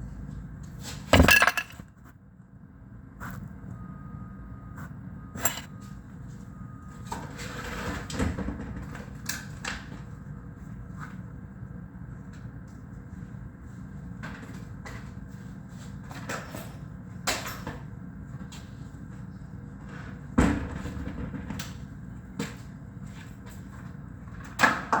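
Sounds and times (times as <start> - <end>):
low electronic hum: 0.0 - 7.2.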